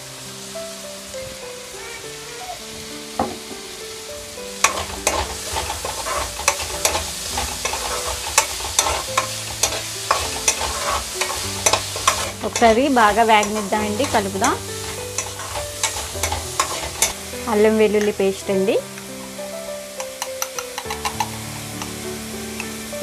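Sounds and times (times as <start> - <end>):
vegetables sizzling in oil: 0.0 - 23.0
spatula scraping and knocking pan: 4.6 - 17.2, 20.0 - 22.8.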